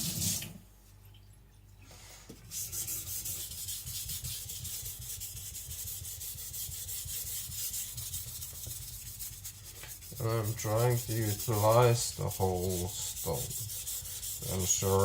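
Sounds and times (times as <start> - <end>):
running tap: 0.0 - 0.6
knife scraping on wet whetstone: 2.5 - 15.0.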